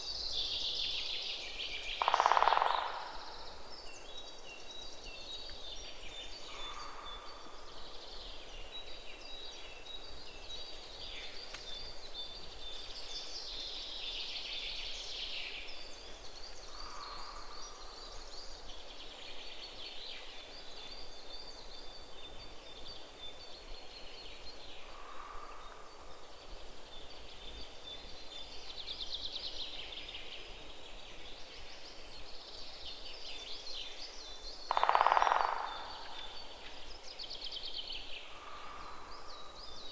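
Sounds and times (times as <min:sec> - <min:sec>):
birds calling: 0:34.7 - 0:36.7.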